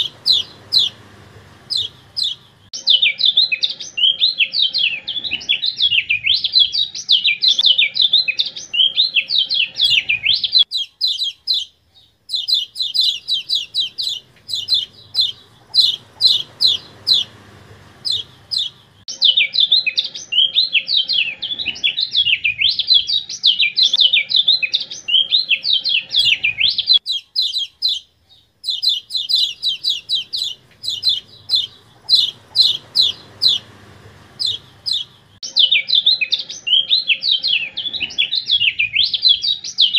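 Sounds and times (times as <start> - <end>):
sharp bird chips: 0.0 - 1.0, 1.7 - 2.6, 8.8 - 11.7, 12.3 - 17.4, 18.0 - 19.0, 25.2 - 33.8, 34.4 - 35.4
bird twittering warble: 0.0 - 11.7, 12.3 - 21.3, 22.0 - 35.7.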